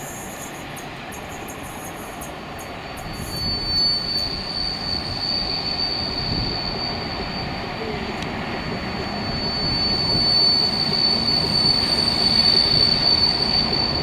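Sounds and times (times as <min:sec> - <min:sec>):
train wheels rumbling on rails: 0:00.0 - 0:14.0
high-pitched wheel squeal: 0:03.0 - 0:14.0.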